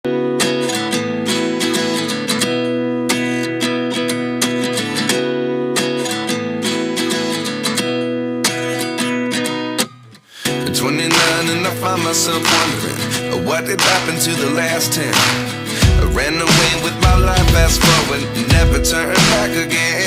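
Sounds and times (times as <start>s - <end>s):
strummed acoustic guitar: 0.0s - 20.0s.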